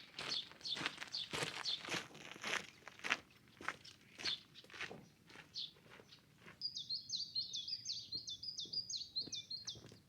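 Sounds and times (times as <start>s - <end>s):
footsteps on ground: 0.2s - 6.6s.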